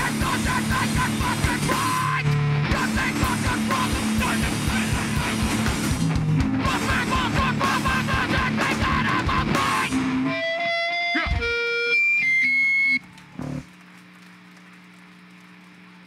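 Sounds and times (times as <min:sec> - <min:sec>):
hardcore band playing live: 0:00.0 - 0:13.0
held electric guitar tones: 0:09.2 - 0:13.7.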